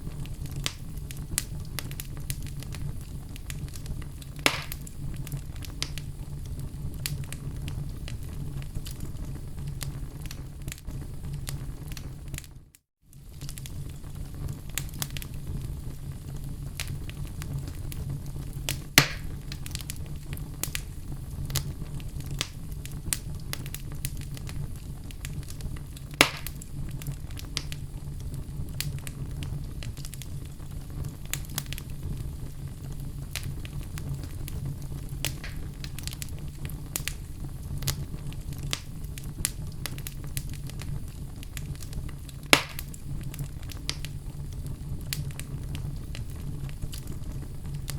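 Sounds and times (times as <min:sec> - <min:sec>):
fire pops: 0:00.0 - 0:47.9
wood fire crackling: 0:00.0 - 0:47.9.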